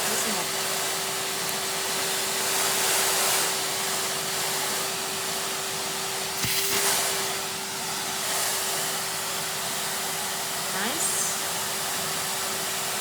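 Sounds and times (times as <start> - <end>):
vacuum cleaner running: 0.0 - 13.0
suction rush with knock: 6.4 - 7.4.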